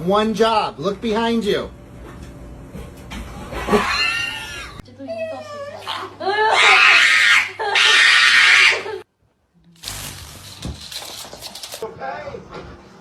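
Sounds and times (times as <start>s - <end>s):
dog screaming shrilly: 3.7s - 4.8s, 5.8s - 9.0s.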